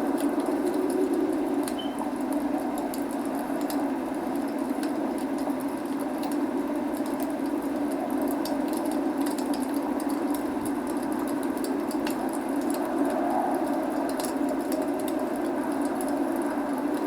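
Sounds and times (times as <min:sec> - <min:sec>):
log fire crackling: 0:00.0 - 0:17.0
rain rushing: 0:00.0 - 0:17.0.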